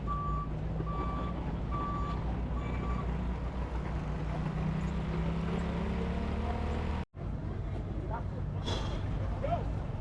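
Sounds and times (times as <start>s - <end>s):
reversing beep: 0.0s - 3.1s
large vehicle engine humming: 0.0s - 10.0s.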